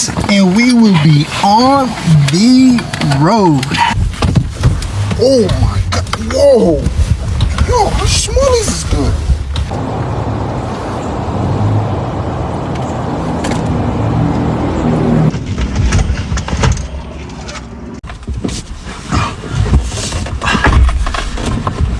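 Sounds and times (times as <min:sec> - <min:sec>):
car engine running: 0:00.0 - 0:09.9
knocks and clatter: 0:02.8 - 0:09.8, 0:15.3 - 0:18.7.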